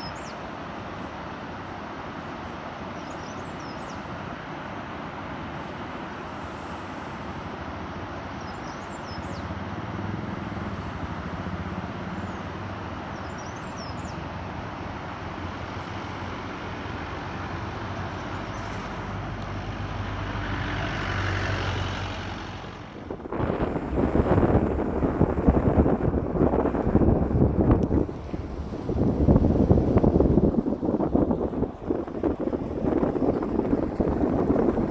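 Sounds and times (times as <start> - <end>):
wind buffeting microphone: 8.4 - 34.9
vehicle rushing noise: 14.0 - 34.9.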